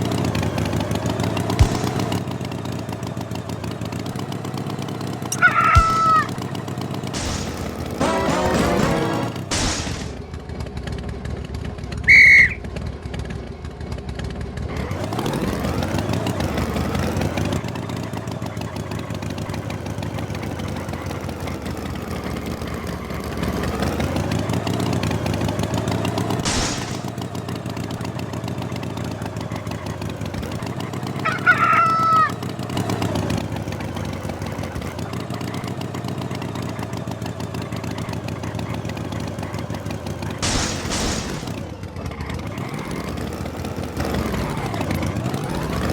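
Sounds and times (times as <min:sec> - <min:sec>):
cartoon tractor engine revving: 0:00.0 - 0:45.9
short high bird calls: 0:05.3 - 0:06.3, 0:12.1 - 0:12.6, 0:31.2 - 0:32.4.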